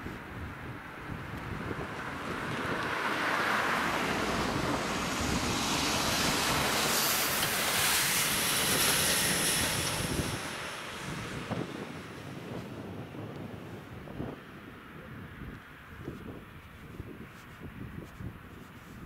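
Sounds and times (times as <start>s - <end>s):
train wheels rushing on rails: 4.6s - 11.5s.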